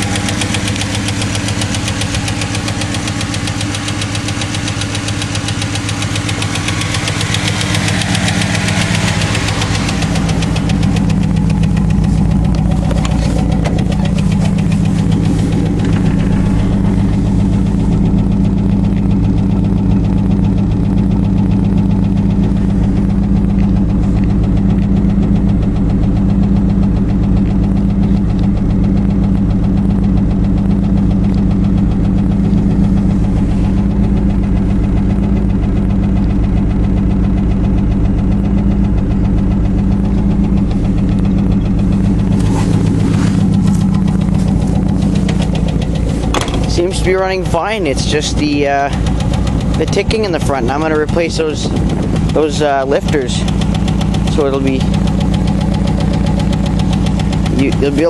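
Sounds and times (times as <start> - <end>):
car engine idling: 0.0 - 58.0
engine valve ticking: 0.0 - 58.0.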